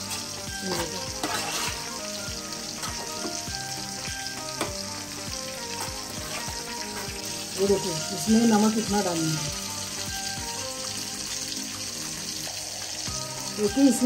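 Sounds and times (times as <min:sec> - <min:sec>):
sauce sizzling in a pot: 0:00.0 - 0:14.0
steel spoon scraping a pot: 0:00.1 - 0:02.1.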